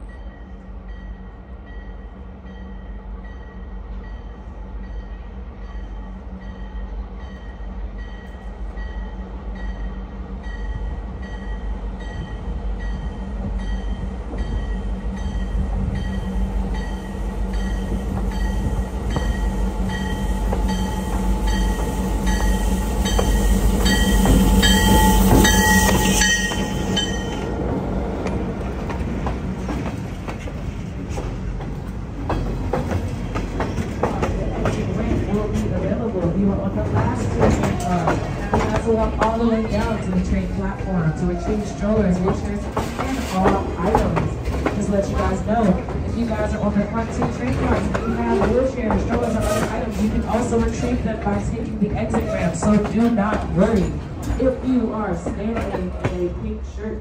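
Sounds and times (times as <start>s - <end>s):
diesel locomotive engine rumble: 0.0s - 57.0s
train wheels clicking on rails: 6.6s - 56.6s
bell ringing: 13.6s - 27.5s.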